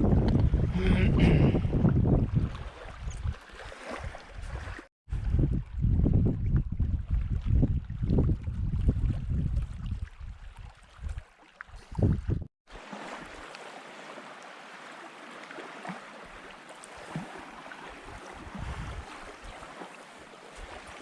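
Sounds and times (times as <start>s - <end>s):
wind buffeting microphone: 0.0s - 3.4s, 4.0s - 11.2s, 11.8s - 12.5s, 18.1s - 19.3s.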